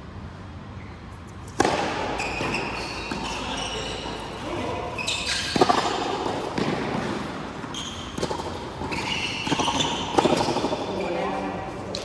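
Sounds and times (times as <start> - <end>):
shoe squeaks on court: 0.8 - 11.4
ball hits and bounces: 1.5 - 11.3.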